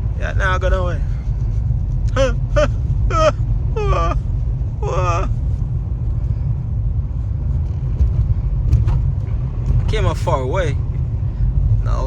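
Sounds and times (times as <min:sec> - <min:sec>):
car driving rumble inside cabin: 0:00.0 - 0:12.0.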